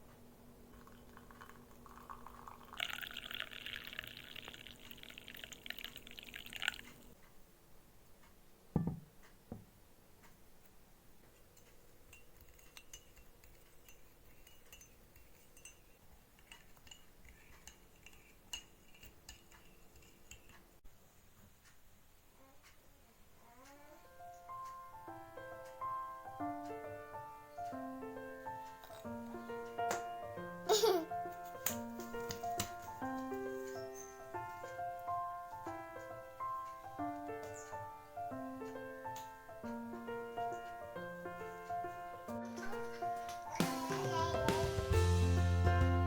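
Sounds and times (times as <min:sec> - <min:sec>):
liquid pouring: 0:00.7 - 0:07.2
thump: 0:08.8 - 0:09.6
faint clinks: 0:11.3 - 0:20.7.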